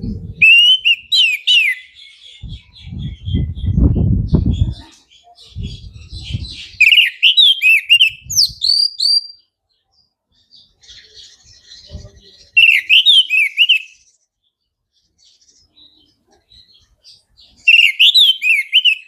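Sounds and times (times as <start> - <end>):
thrush whistling song: 0.0 - 9.4, 11.8 - 14.1, 17.6 - 19.0
bird twittering: 0.4 - 9.5, 10.6 - 14.1, 15.6 - 19.0.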